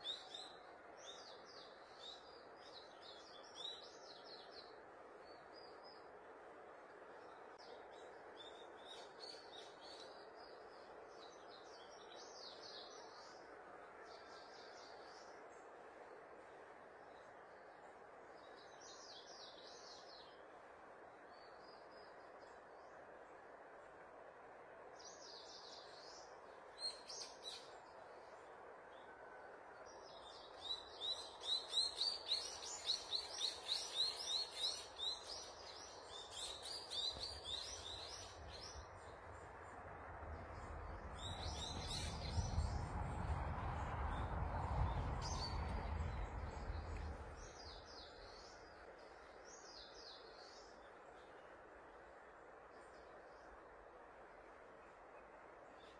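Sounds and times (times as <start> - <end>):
steady background hiss: 0.0 - 55.9
low rumble: 38.1 - 47.7
birds chirping and singing: 40.6 - 42.8.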